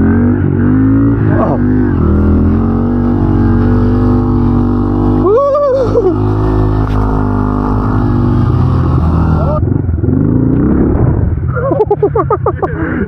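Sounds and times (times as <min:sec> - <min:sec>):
motorbike engine running: 0:00.0 - 0:12.3
rising and falling pitched sound: 0:01.1 - 0:09.7.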